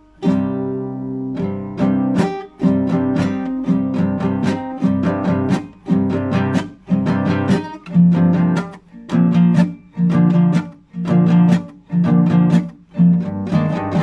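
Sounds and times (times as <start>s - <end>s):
classical guitar playing: 0.0s - 14.0s.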